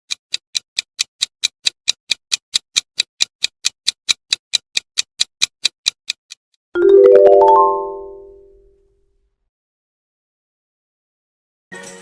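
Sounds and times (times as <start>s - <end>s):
timer ticking: 0.0s - 6.5s.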